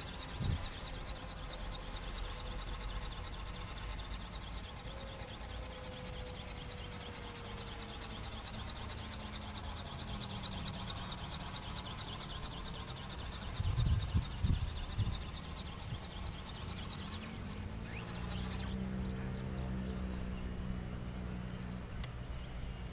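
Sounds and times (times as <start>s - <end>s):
low wind rumble: 0.0s - 1.1s, 12.6s - 22.9s
faint high chirping: 0.0s - 22.9s
wind buffeting microphone: 0.2s - 0.9s, 13.2s - 16.9s.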